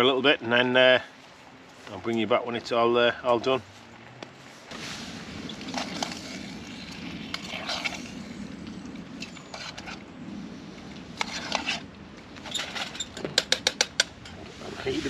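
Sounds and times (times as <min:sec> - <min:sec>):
burner low rumble: 0:01.3 - 0:13.3.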